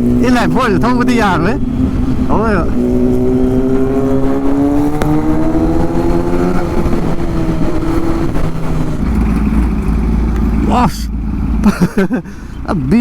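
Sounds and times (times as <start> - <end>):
motorcycle engine and exhaust: 0.0 - 13.0.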